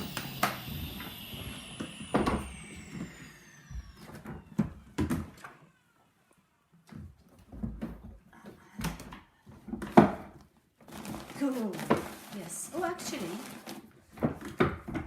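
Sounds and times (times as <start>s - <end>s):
vacuum cleaner motor spinning down: 0.0s - 8.1s, 10.9s - 15.0s
knocks and clunks of handling: 6.8s - 12.3s.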